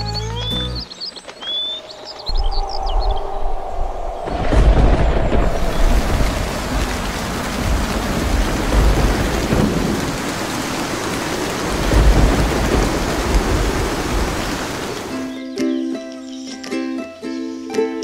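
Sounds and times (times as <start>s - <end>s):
heavy rain: 1.0s - 15.4s
thunder rolling: 2.1s - 15.1s.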